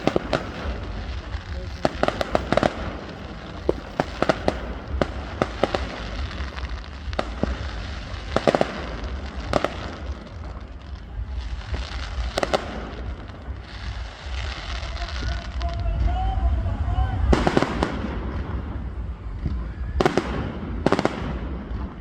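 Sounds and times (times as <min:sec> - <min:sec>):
fireworks pops: 0:00.0 - 0:16.1
fireworks bangs and cracks: 0:00.0 - 0:22.0
low rumble: 0:00.0 - 0:22.0.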